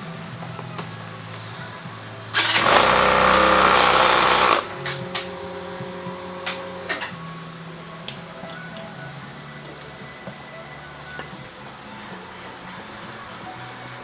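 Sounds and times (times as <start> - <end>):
background music: 0.0 - 14.0
sharp clicks: 2.4 - 5.5.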